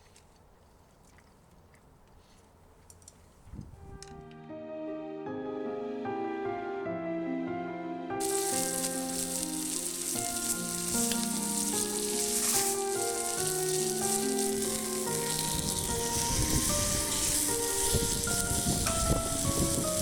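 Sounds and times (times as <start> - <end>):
background music: 3.8 - 20.0
steak sizzling on hot plate: 8.2 - 20.0.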